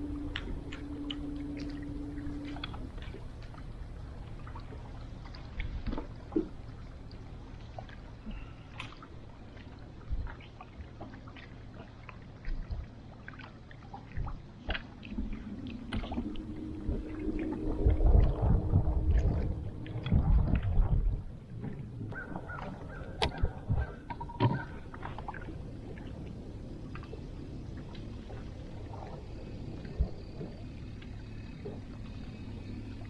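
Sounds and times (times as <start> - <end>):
steady low hum: 0.0 - 33.0
water lapping at boat hull: 0.0 - 33.0
rumbling: 15.1 - 33.0.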